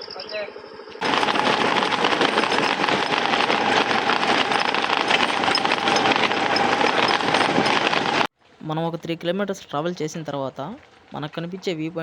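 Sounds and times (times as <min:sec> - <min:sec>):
scooter on stony track: 0:01.0 - 0:08.3
small knocks and rattles: 0:01.0 - 0:08.3.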